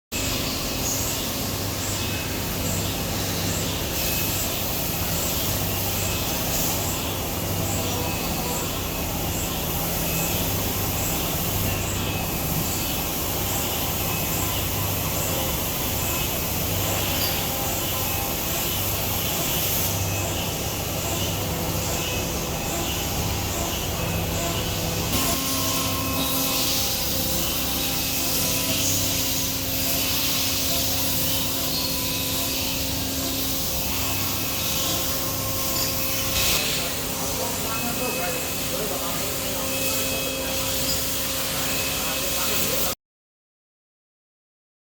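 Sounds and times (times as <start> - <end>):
machine hiss and hum: 0.1 - 43.0.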